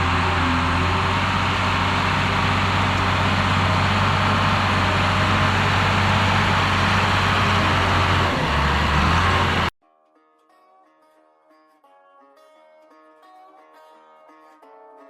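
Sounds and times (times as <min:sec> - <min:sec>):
diesel engine running: 0:00.0 - 0:09.7.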